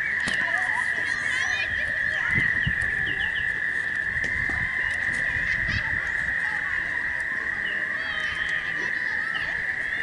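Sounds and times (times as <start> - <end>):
bird chirps: 0.0 - 3.9
frogs trilling: 0.0 - 10.0.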